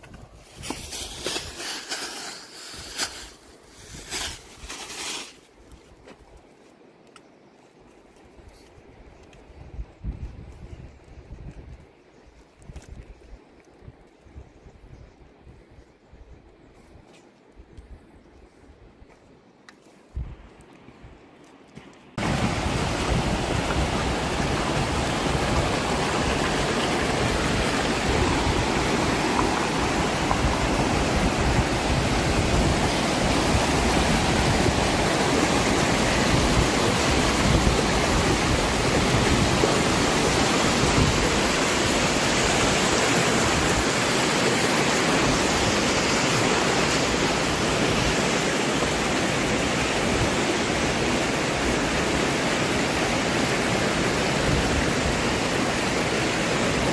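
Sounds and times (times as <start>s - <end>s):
turbulent river water rushing: 22.2s - 56.9s.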